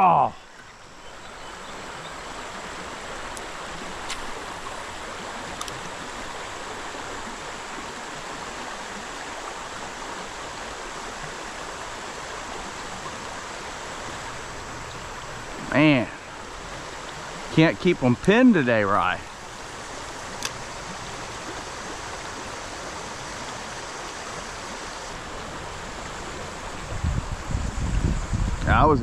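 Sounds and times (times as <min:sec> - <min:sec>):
creek water rushing: 0:00.0 - 0:29.0
faint clicks: 0:03.2 - 0:04.5, 0:05.5 - 0:06.0.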